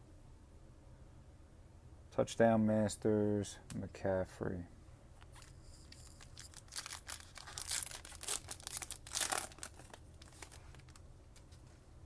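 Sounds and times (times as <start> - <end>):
foil wrapper crinkling and tearing: 5.4 - 11.0.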